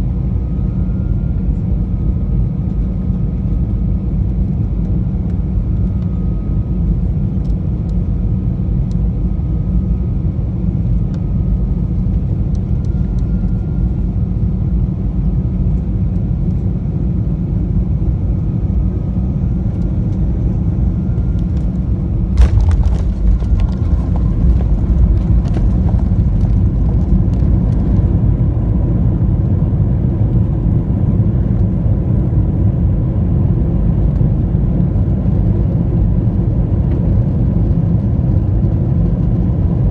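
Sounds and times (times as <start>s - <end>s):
aircraft cabin rumble: 0.0s - 39.9s
aircraft rattling on runway: 19.6s - 29.8s.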